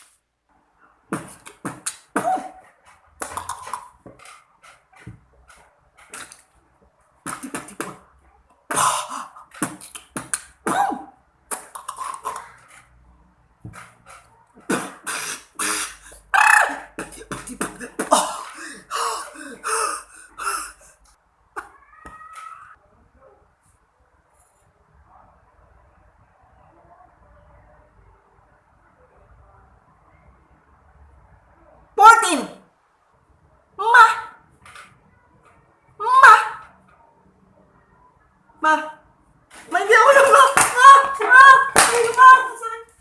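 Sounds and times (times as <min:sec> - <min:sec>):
beatboxing: 0:14.6 - 0:18.2.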